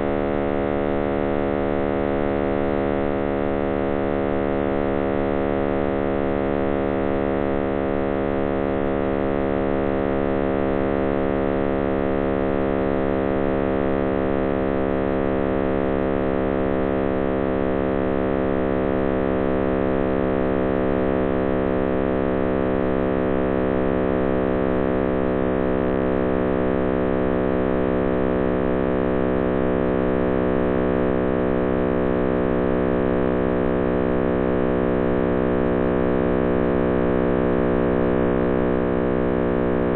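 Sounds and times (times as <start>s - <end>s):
dense hum of stacked tones: 22.8s - 39.9s.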